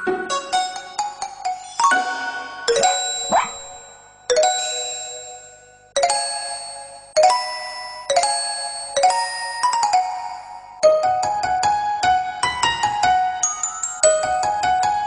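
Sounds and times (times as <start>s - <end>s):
electronic chiming melody: 2.8s - 4.0s.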